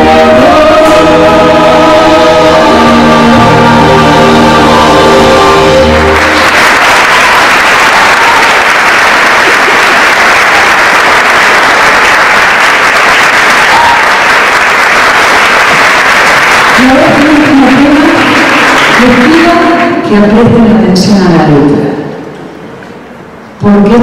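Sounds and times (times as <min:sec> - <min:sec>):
held sung note with accompaniment: 0:00.0 - 0:06.5
audience applauding: 0:05.8 - 0:20.0.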